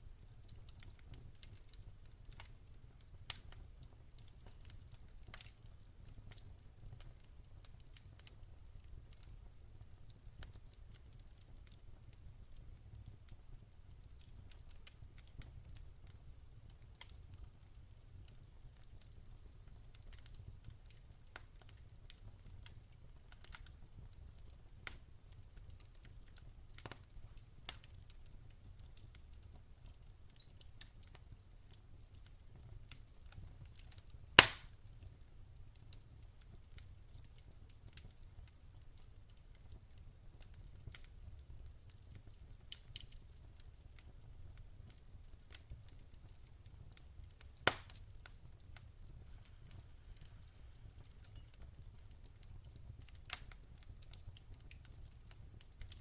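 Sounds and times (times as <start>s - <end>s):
campfire crackling: 0.0s - 56.0s
loud fire pops: 34.4s - 34.8s, 47.4s - 48.2s.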